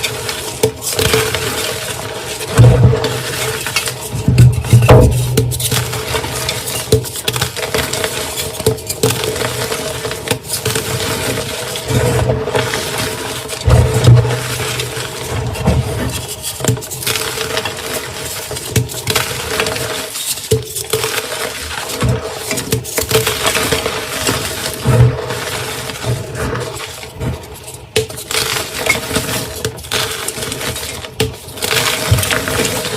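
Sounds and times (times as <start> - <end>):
chalk blocks being crushed: 27.8 - 32.9.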